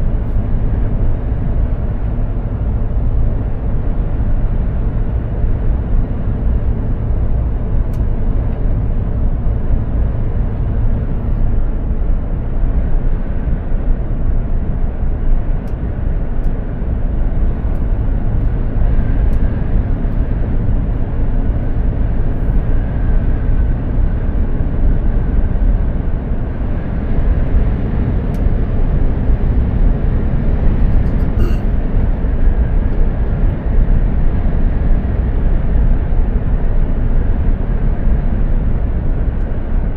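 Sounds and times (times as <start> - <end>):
truck diesel engine droning: 0.0 - 35.1
road and tyre noise: 0.0 - 39.9
faint whine: 28.3 - 32.4.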